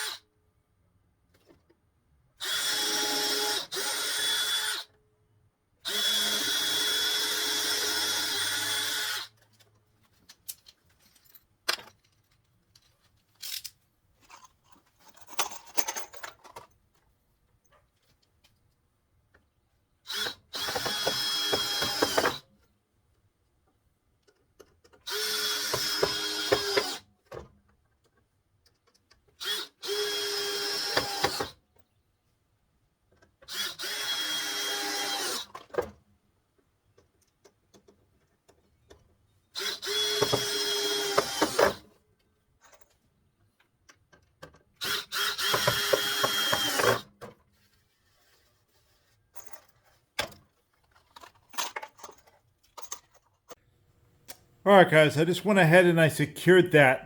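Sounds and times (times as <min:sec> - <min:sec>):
power drill driving screws into wood: 0:02.4 - 0:04.9, 0:05.8 - 0:09.3, 0:20.1 - 0:22.4, 0:25.0 - 0:27.1, 0:29.4 - 0:31.6, 0:33.5 - 0:35.6, 0:39.6 - 0:41.8, 0:44.8 - 0:47.1.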